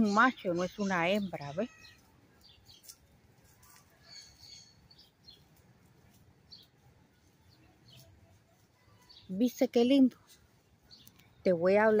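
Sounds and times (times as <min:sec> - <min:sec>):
faint bird chirps: 0:00.0 - 0:05.5.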